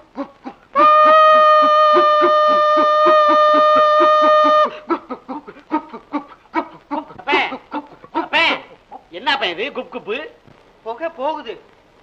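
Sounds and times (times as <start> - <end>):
person imitating train whistle: 0.8 - 4.8.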